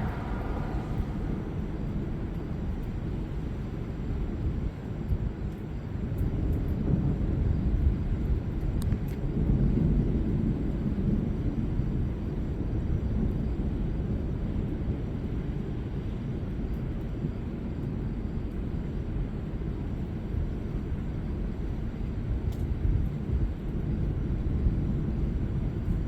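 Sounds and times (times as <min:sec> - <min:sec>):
distant rolling thunder: 0:00.0 - 0:04.3.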